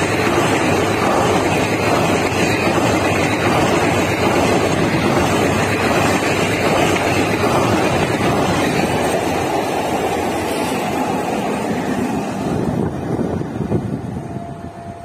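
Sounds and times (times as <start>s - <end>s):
train coaches rushing past: 0.0s - 15.0s
wind buffeting microphone: 12.3s - 15.0s.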